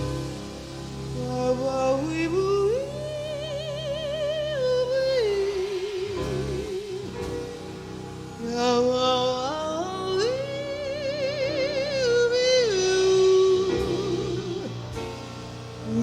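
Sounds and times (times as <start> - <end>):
woman singing long notes: 8.4 - 14.9.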